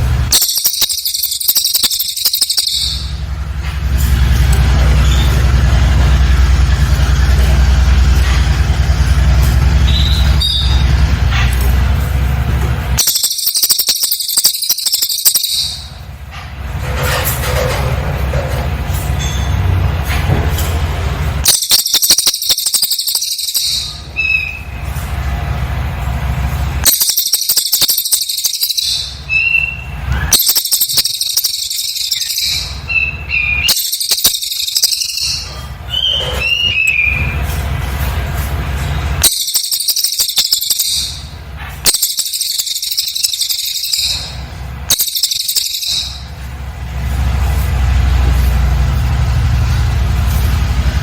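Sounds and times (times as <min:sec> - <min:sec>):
bird singing high-pitched bursts: 0:00.0 - 0:03.3, 0:09.8 - 0:11.0, 0:13.0 - 0:16.1, 0:21.4 - 0:24.9, 0:26.8 - 0:37.4, 0:39.2 - 0:46.4
whistled bird chirps: 0:00.3 - 0:03.2, 0:09.8 - 0:10.8, 0:13.0 - 0:16.0, 0:21.4 - 0:24.8, 0:26.8 - 0:37.4, 0:39.2 - 0:46.3.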